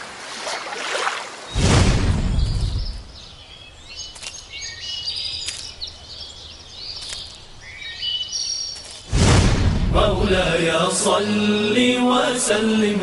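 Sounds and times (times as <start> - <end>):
small birds chirping and twittering: 1.3 - 9.1, 11.1 - 12.0.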